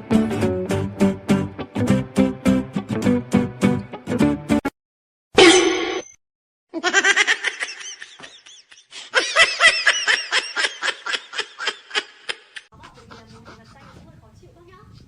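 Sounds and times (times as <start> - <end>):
person laughing: 6.8 - 12.7.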